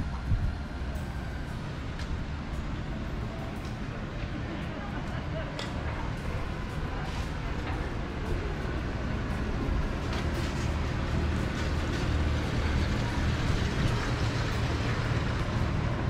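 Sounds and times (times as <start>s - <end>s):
road vehicles rumbling: 0.0s - 16.0s.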